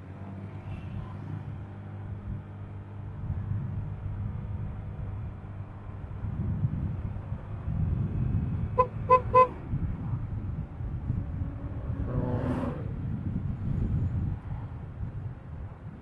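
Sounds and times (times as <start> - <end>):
wind and engine rumble: 0.0 - 16.0
vehicle horn beeps: 8.8 - 9.6.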